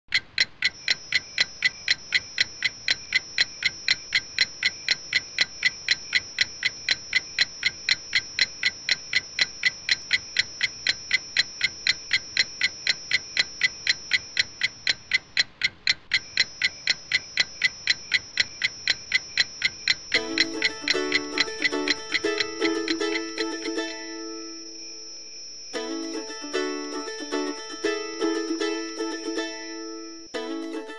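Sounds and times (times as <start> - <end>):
clock ticking fast: 0.1 - 24.2
plucked-string tune: 20.2 - 24.6, 25.8 - 30.9.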